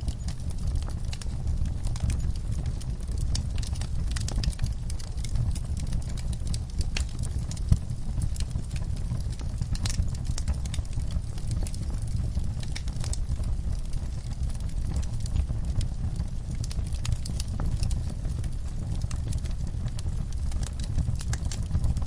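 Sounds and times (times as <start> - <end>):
fire popping: 0.0 - 22.0
wood fire crackling: 0.0 - 22.0.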